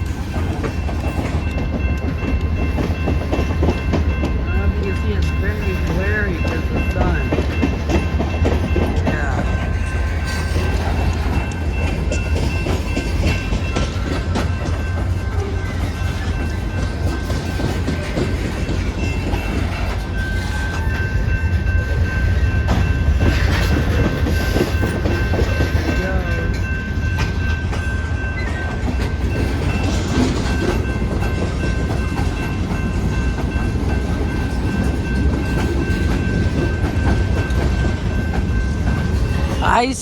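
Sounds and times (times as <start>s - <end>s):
freight train rumbling past: 0.0s - 40.0s.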